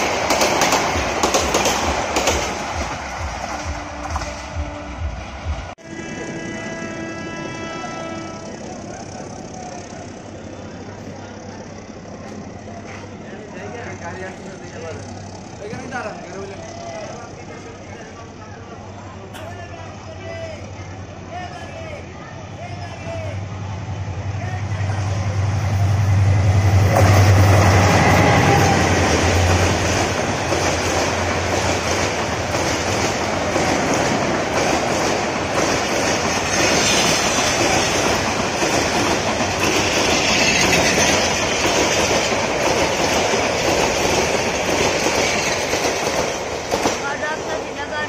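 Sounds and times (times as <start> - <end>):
train wheels clicking over rail joints: 0.0 - 4.5, 29.2 - 47.2
diesel locomotive engine drone: 0.0 - 48.0.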